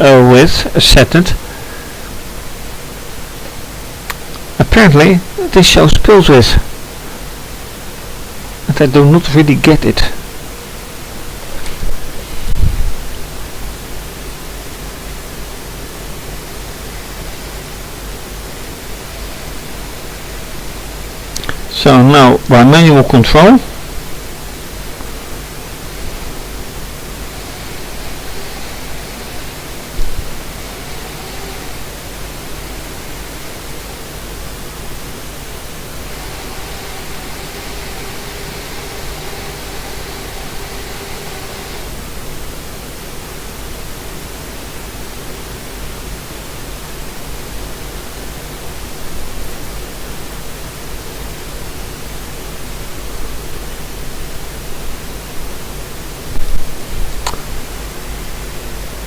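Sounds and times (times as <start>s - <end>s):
steady hiss: 0.0s - 59.0s
small electric motor whirring: 11.6s - 13.2s, 25.8s - 42.6s.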